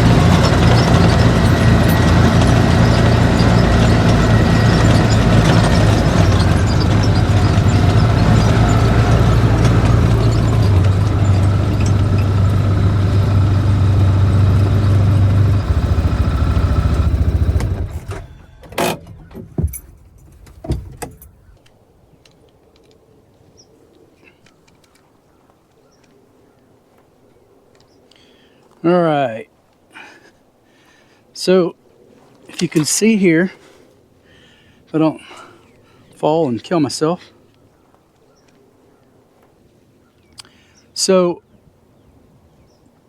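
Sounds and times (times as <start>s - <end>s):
vehicle engine running: 0.0s - 21.7s.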